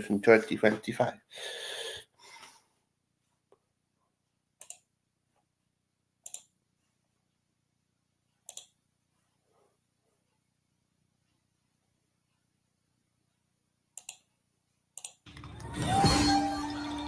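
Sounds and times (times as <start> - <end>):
computer mouse clicks: 4.6 - 4.9, 6.2 - 6.6, 8.4 - 8.8, 13.9 - 14.3, 15.0 - 15.2.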